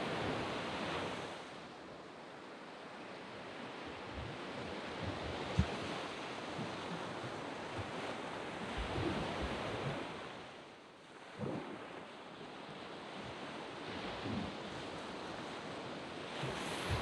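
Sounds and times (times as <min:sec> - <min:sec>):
waves breaking on a beach: 0:00.0 - 0:17.0
wind bumps on microphone: 0:04.0 - 0:10.4, 0:11.3 - 0:12.0, 0:13.2 - 0:17.0.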